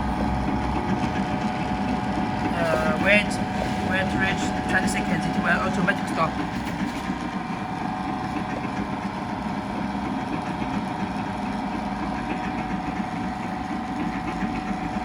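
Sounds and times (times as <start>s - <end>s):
milling machine motor hum: 0.0s - 15.0s.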